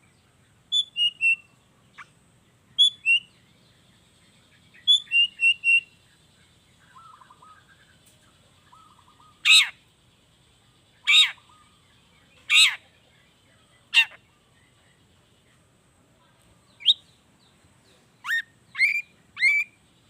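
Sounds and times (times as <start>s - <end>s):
faint soft bird chattering: 0.0s - 20.0s
shrike calling: 0.7s - 2.2s, 2.8s - 3.5s, 4.5s - 10.0s, 10.6s - 14.7s, 16.8s - 17.1s, 18.2s - 20.0s.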